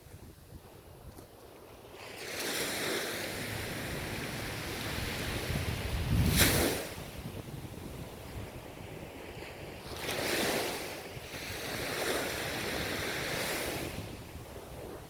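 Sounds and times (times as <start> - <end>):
ocean waves breaking on shore: 0.0 - 15.0.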